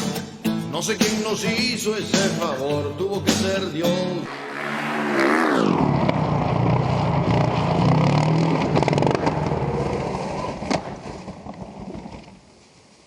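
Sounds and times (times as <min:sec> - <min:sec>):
vehicle engine running: 0:04.3 - 0:10.4.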